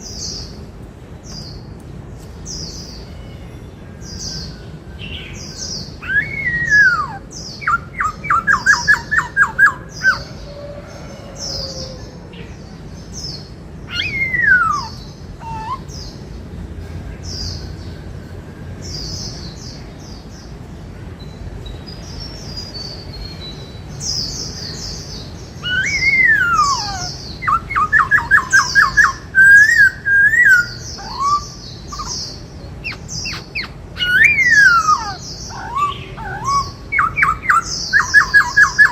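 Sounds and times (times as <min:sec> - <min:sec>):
bird whistles and trills: 0:04.2 - 0:10.3, 0:13.9 - 0:16.2, 0:21.3 - 0:38.9
high chirping: 0:05.2 - 0:10.3, 0:21.2 - 0:38.9.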